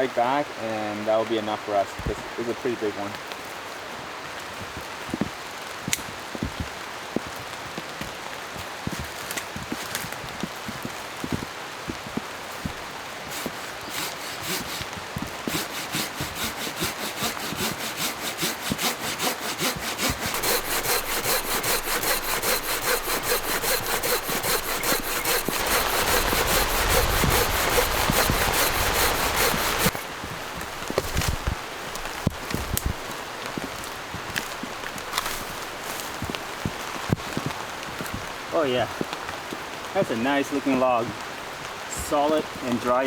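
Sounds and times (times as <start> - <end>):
hand saw cutting wood: 13.2 - 33.1, 33.8 - 36.3.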